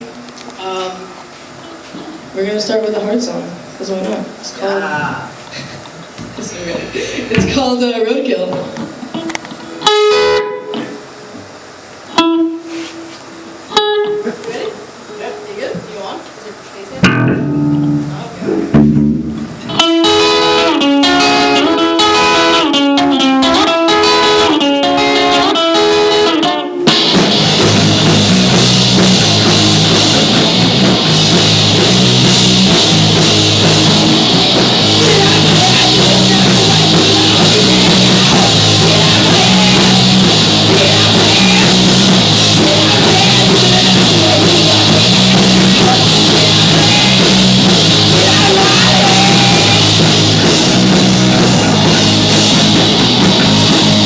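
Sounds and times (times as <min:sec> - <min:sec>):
rock band playing: 0:09.1 - 0:11.0, 0:12.1 - 0:14.3, 0:17.0 - 0:54.0
lone guitar picking: 0:09.1 - 0:15.5, 0:17.0 - 0:54.0.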